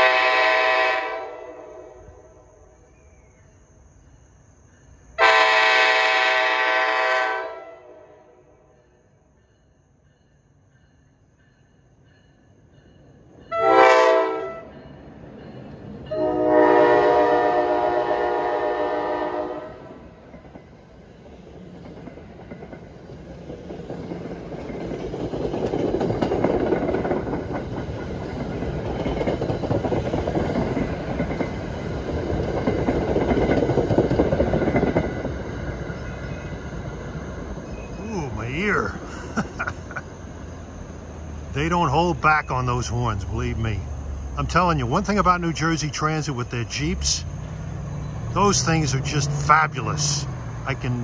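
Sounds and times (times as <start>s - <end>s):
train horn blasts: 0.0s - 2.4s, 5.2s - 8.6s, 13.5s - 14.9s, 16.1s - 20.0s
train rumbling past: 0.0s - 51.0s
wheels clattering over rails: 20.2s - 36.6s.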